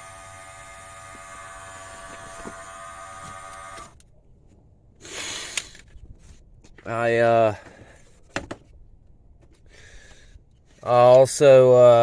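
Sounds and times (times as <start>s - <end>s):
air pump buzzing: 0.0s - 4.0s.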